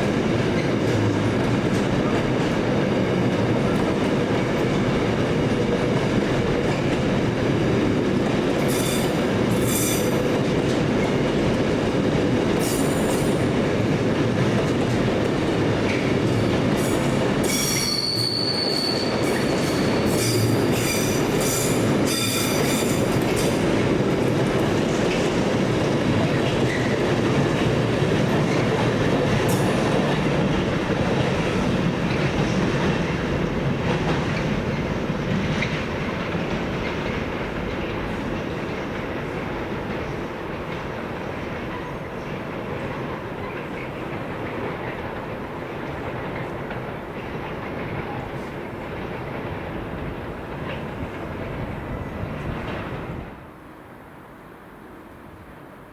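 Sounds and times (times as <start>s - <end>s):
train wheels rumbling on track: 0.0s - 55.9s
high-pitched wheel squeals: 17.4s - 23.0s.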